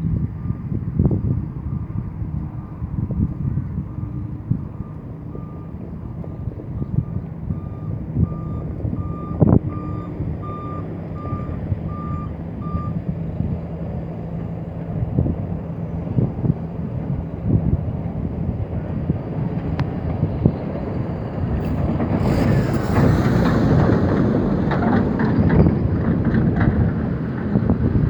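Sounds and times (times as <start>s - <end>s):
heavy diesel machinery running: 1.3s - 28.0s
reversing alarm beeping: 4.6s - 13.0s.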